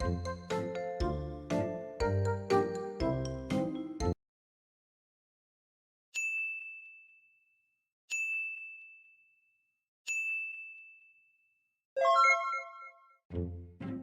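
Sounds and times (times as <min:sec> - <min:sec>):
high bell-like dings: 0:06.2 - 0:07.5, 0:08.1 - 0:09.4, 0:10.1 - 0:11.4.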